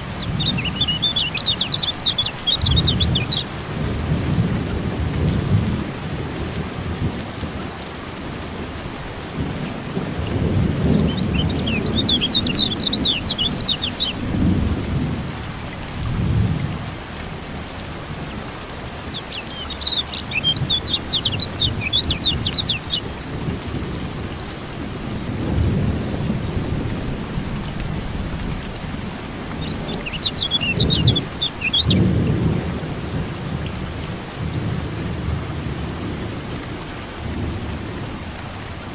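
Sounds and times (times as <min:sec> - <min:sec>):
steady rain: 0:00.0 - 0:38.9
bird rapid high chirping: 0:00.2 - 0:03.5, 0:11.1 - 0:14.2, 0:18.8 - 0:23.0, 0:29.6 - 0:32.0
rolling thunder: 0:09.3 - 0:17.4.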